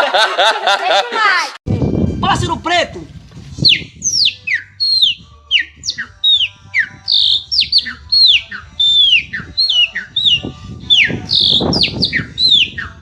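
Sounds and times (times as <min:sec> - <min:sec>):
bird whistling song: 0:03.6 - 0:13.0.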